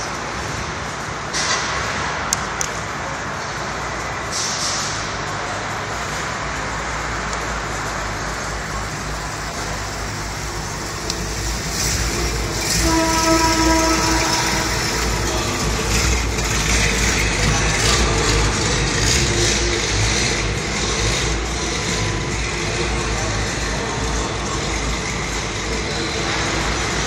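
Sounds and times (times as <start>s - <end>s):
car engine running low: 0.0s - 27.0s.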